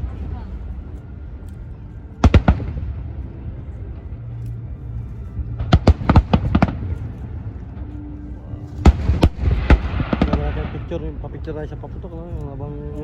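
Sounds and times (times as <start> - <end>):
low background rumble: 0.0 - 13.0
fireworks bangs: 8.9 - 10.9.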